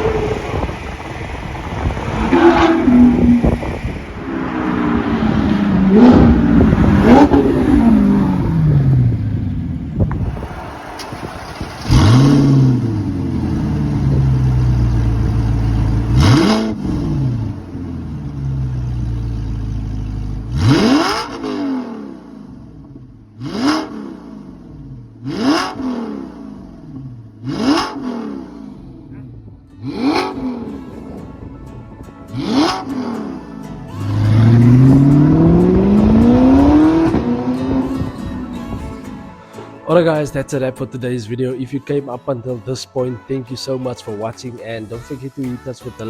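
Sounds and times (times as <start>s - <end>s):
sharp throttle blips: 0.0s - 9.1s
car engine revving: 0.0s - 31.5s, 32.3s - 39.4s.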